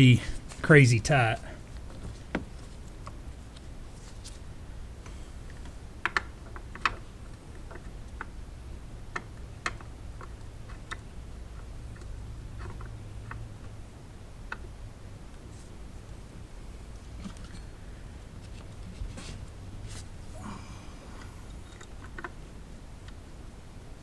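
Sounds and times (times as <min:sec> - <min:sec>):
low steady hum: 0:00.0 - 0:06.0, 0:14.9 - 0:24.0.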